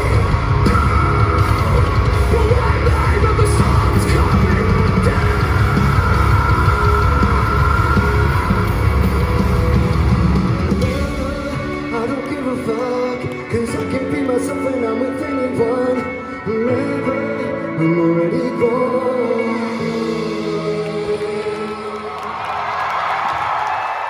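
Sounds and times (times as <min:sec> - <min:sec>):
people singing: 0:00.0 - 0:15.9
live rock band playing: 0:00.0 - 0:21.7
sustained guitar: 0:00.0 - 0:22.1.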